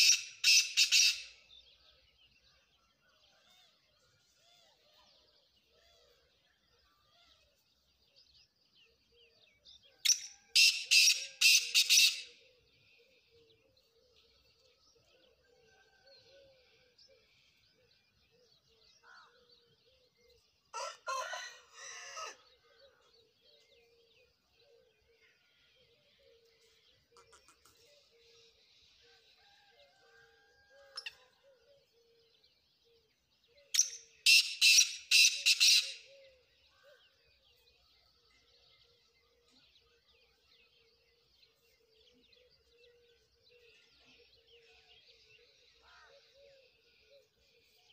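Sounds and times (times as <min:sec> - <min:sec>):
small birds chirping: 0:00.0 - 0:47.9
francolin calling: 0:33.6 - 0:36.4.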